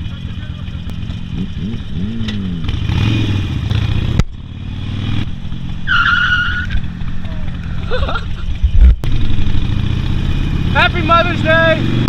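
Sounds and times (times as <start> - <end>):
motorcycle engines in traffic: 0.0 - 12.0.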